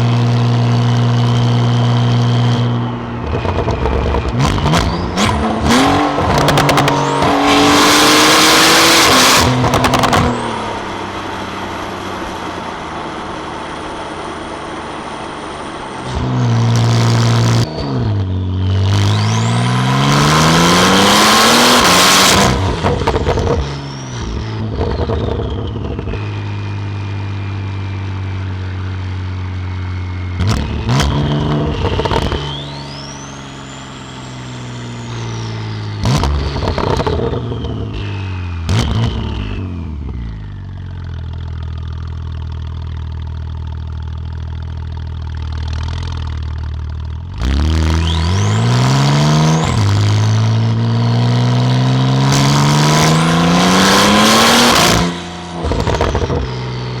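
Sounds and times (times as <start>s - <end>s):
sports car engine accelerating: 0.0s - 57.0s
high turbo whistle: 17.8s - 39.6s, 47.5s - 50.0s.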